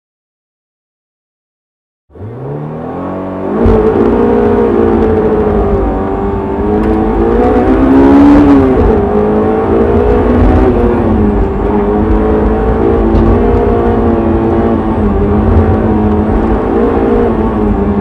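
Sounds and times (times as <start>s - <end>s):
car engine revving: 2.1s - 18.0s
low rumble: 3.6s - 18.0s.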